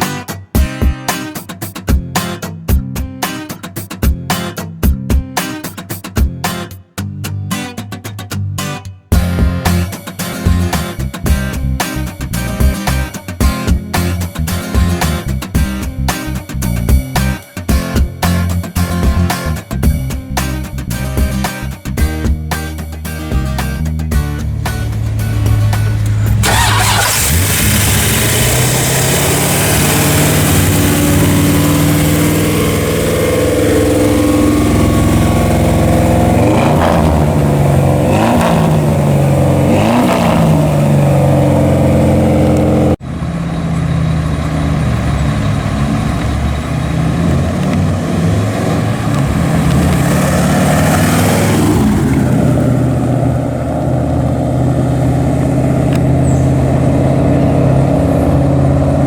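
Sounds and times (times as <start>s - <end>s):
car engine rumbling and revving: 9.1s - 17.4s, 23.3s - 59.0s.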